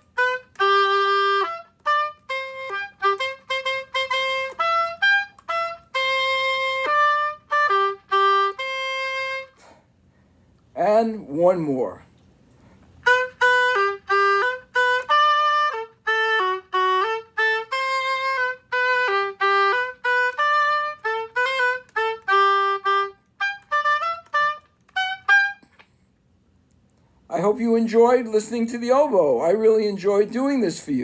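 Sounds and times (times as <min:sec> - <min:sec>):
oboe playing a tune: 0:00.0 - 0:09.8, 0:13.0 - 0:25.8.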